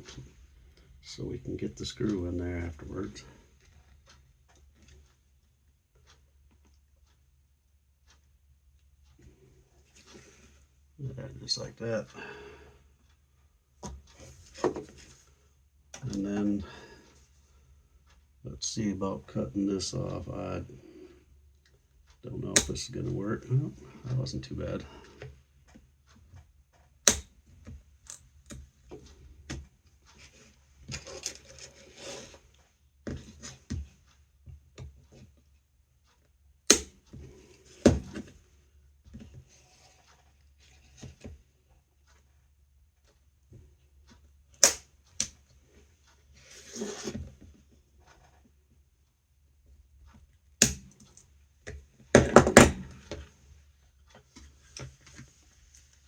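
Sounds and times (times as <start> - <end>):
sharp clicks and knocks: 21.6 - 23.2, 25.1 - 35.4, 43.0 - 46.2
scraping and rubbing: 30.1 - 32.7, 46.3 - 47.4.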